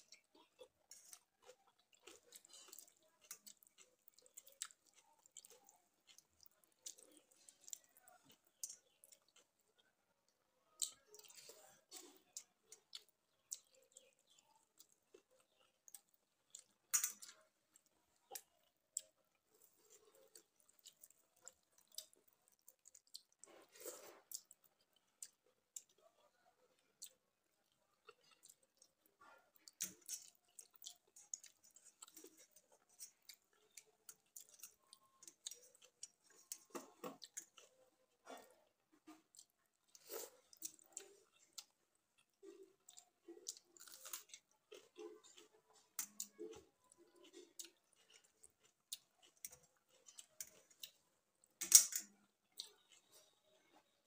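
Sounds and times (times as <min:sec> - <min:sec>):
soft wet chewing: 0:00.0 - 0:54.0.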